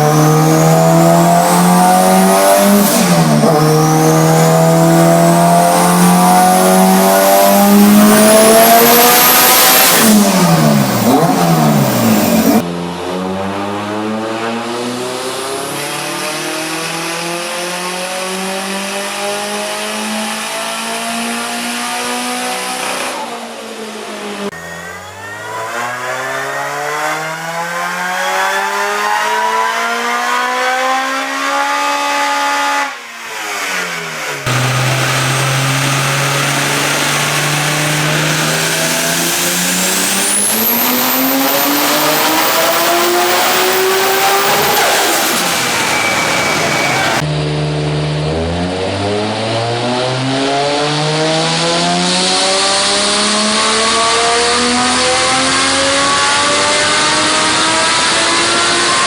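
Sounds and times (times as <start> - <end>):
car engine full-throttle pulls: 0.0 - 12.7, 33.4 - 47.3
high whine: 34.4 - 48.6.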